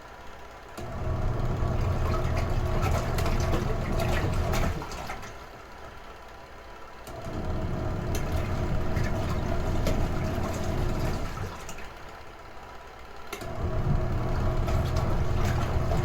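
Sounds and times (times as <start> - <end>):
washing machine motor humming: 0.7 - 6.3, 7.0 - 12.6, 13.3 - 16.0
water sloshing: 8.2 - 11.9, 14.3 - 16.0.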